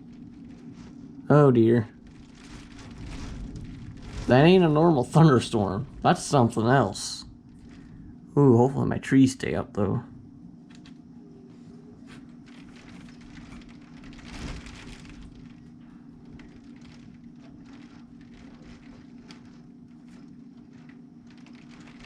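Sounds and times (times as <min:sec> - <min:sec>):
heavy rain: 0:00.0 - 0:08.0, 0:12.5 - 0:22.0
low hum: 0:00.0 - 0:22.0.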